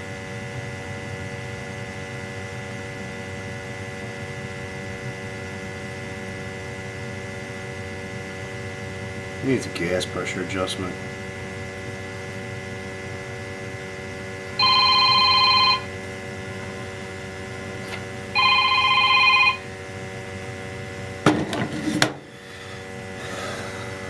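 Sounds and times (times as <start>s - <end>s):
steady hum: 4.8s - 24.0s
telephone ringing: 14.6s - 16.0s, 18.3s - 19.8s.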